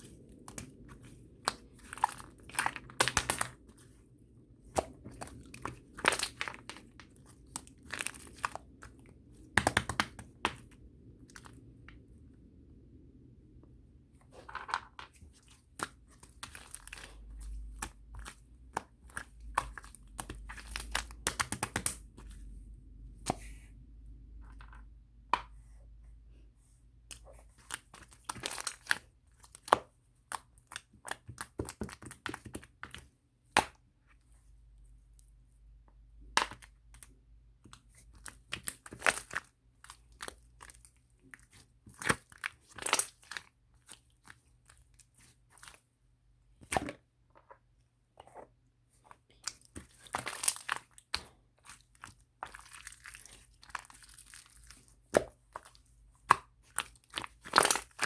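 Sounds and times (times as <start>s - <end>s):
close crunching and crackling: 49.4s - 58.0s.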